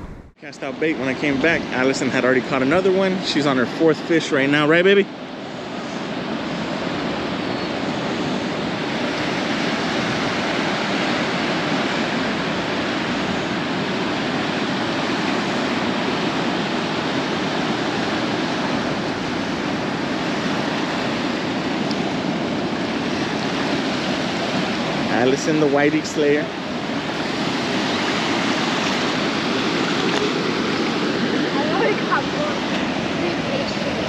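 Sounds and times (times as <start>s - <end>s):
surf rushing: 0.0s - 34.0s
wind: 0.0s - 34.0s.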